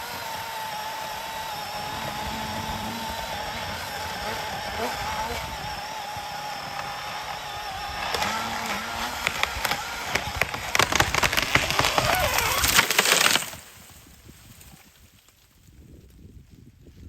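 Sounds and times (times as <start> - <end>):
tree cracking and falling: 1.2 - 15.7
crash through branches: 9.1 - 15.4.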